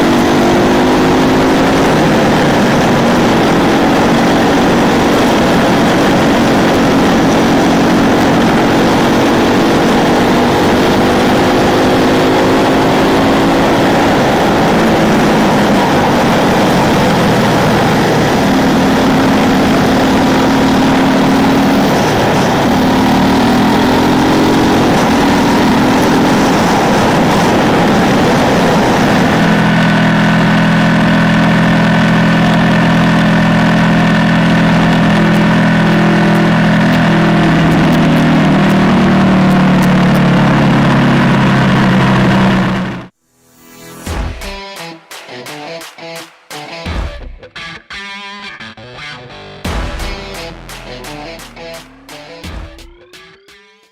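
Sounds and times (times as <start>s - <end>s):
motorcycle engine revving: 0.0s - 43.2s, 49.6s - 53.9s
wind rush: 12.4s - 30.1s.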